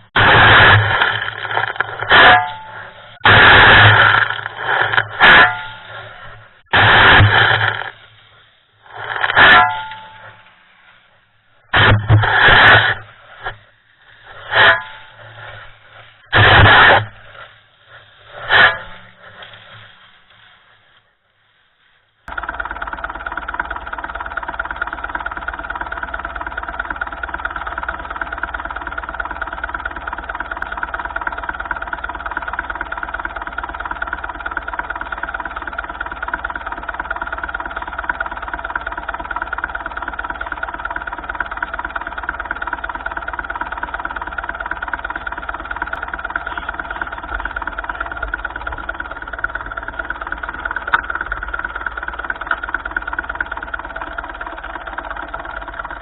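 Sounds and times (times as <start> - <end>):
tractor engine running steadily: 0.0 - 56.0.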